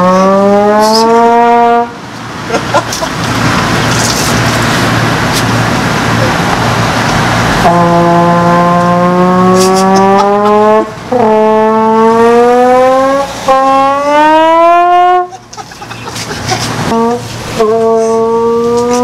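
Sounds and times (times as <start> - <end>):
trombone sliding upward notes: 0.0 - 2.0, 7.4 - 15.3, 16.8 - 19.0.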